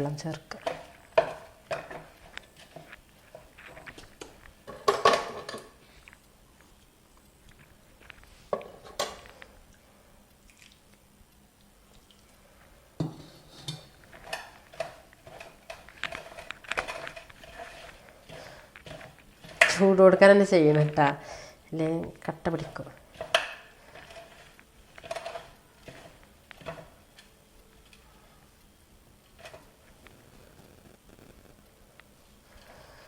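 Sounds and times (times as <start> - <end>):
metal spoon scraping a pan: 0.5 - 5.7, 13.0 - 20.2, 22.5 - 27.3.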